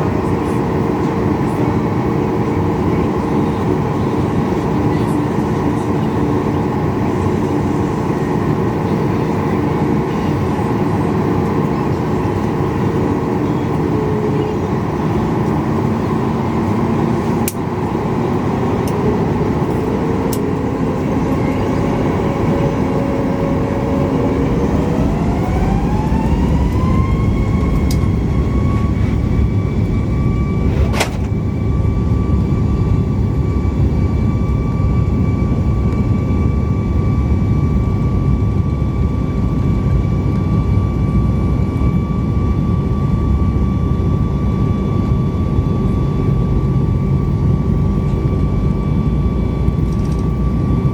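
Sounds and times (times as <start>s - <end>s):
jet engines whining in cabin: 0.0s - 50.9s.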